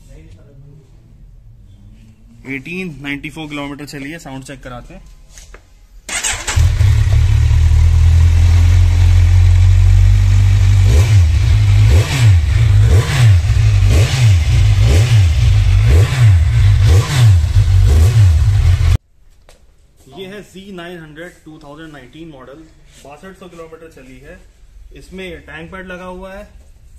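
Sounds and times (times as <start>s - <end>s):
motorcycle engine revving: 6.1s - 19.0s.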